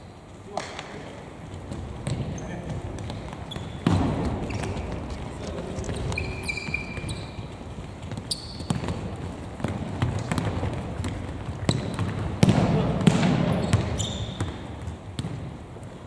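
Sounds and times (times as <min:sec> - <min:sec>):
ball being kicked: 0:08.1 - 0:15.5.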